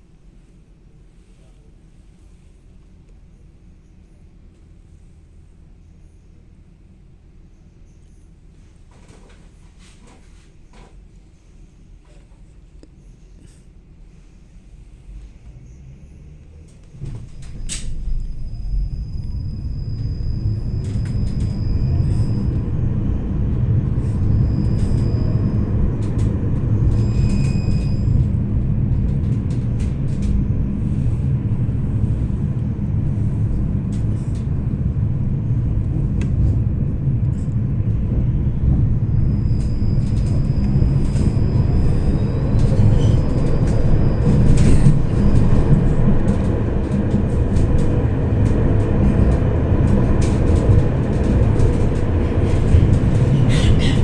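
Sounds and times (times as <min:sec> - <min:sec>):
tram rumbling on rails: 0:00.0 - 0:54.0
clicks of tram wheels: 0:16.6 - 0:54.0.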